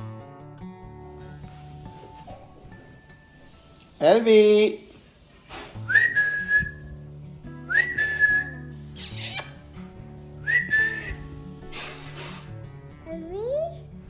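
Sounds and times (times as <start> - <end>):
soft background music: 0.0 - 14.0
brief harsh hiss: 5.4 - 5.9, 8.8 - 9.8, 11.6 - 12.6
rising whistles: 5.9 - 6.9, 7.7 - 8.7.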